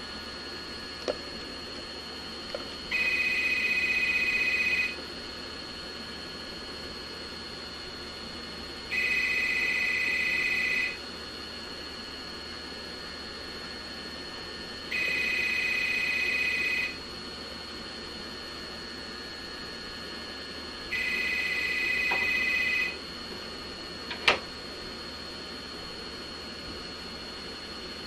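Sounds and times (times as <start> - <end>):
faint high whine: 2.5 - 5.1, 8.9 - 11.0, 12.3 - 17.1, 18.2 - 23.0
telephone ringing: 2.9 - 5.0, 8.9 - 11.0, 14.9 - 17.0, 20.9 - 23.0.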